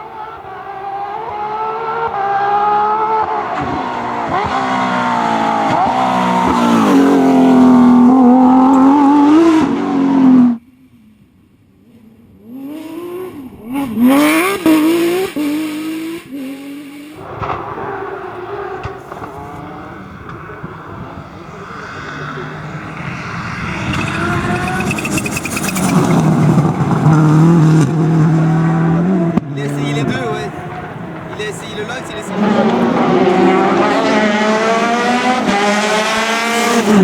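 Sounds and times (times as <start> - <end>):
car engine revving: 0.0 - 10.6, 12.0 - 37.0
rally car engine accelerating: 0.0 - 10.6, 11.8 - 37.0.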